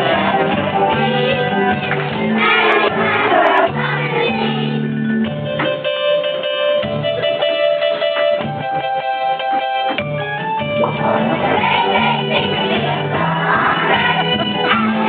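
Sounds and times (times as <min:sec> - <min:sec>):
voices singing: 0:00.0 - 0:04.9, 0:11.0 - 0:15.0
instrumental accompaniment: 0:00.0 - 0:15.0.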